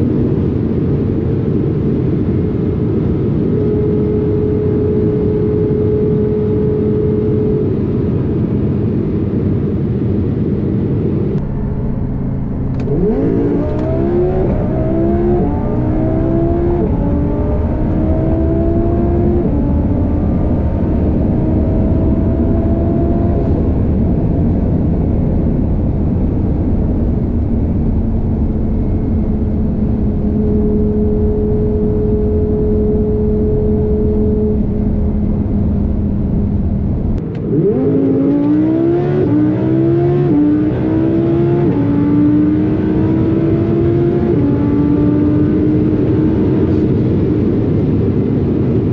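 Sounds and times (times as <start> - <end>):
wind noise: 0.0 - 48.9
car engine pulling hard: 11.3 - 48.9.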